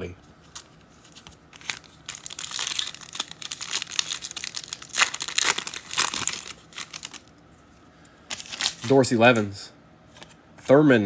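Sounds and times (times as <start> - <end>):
foil pack tearing and crinkling: 0.6 - 7.3, 8.3 - 9.0.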